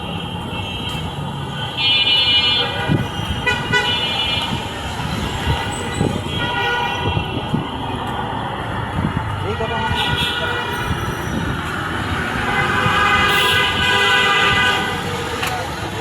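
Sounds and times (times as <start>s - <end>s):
vehicle horns honking: 0.0s - 4.6s, 5.4s - 7.7s, 9.6s - 11.4s, 12.2s - 15.2s
traffic engines and tyres: 0.0s - 16.0s.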